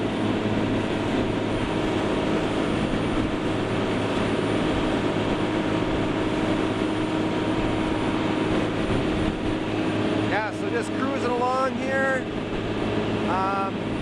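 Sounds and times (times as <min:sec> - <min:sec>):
boat engine droning: 0:00.0 - 0:14.0
hull and water noise: 0:00.0 - 0:14.0.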